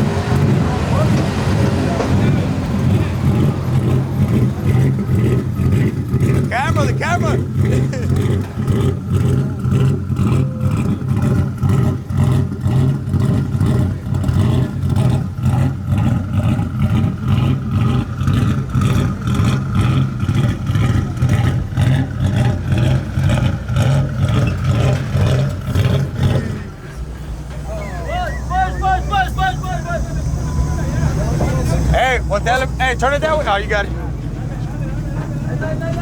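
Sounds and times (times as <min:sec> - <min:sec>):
truck engine revving: 0:00.0 - 0:36.0.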